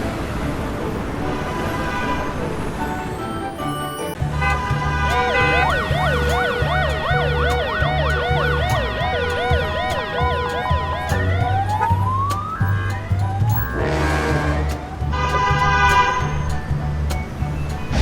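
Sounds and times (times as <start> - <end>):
background music with bass line: 4.2 - 18.0
electronic siren yelping: 5.1 - 13.9.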